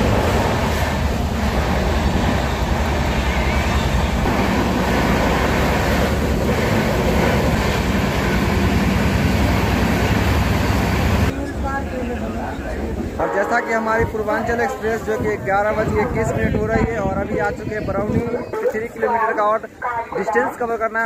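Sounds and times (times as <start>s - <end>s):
train running noise inside coach: 0.0s - 15.2s.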